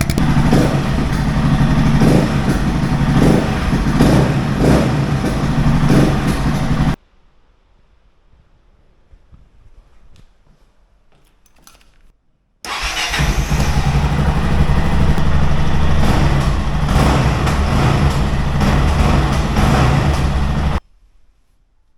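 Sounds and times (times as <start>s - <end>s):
motorcycle engine running: 0.0s - 7.0s, 12.7s - 20.8s.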